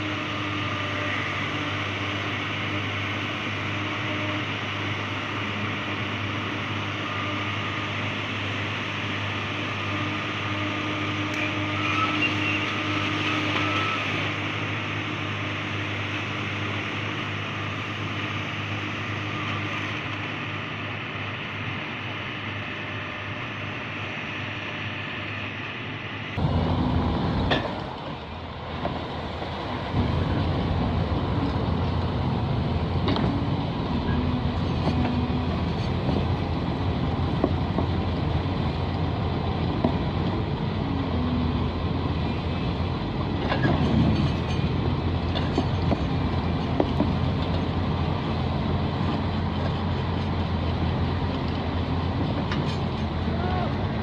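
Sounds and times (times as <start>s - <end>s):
heavy truck engine running: 0.0s - 54.0s
engine rattles and knocks: 26.4s - 40.7s, 41.6s - 53.3s.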